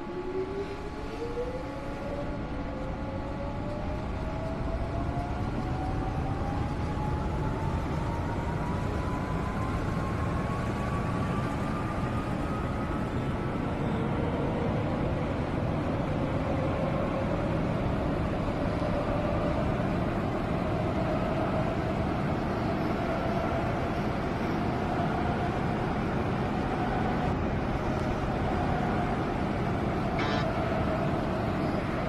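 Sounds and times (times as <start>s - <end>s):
wheels rumbling on rails: 0.0s - 32.0s
traction motor whine: 30.2s - 30.6s.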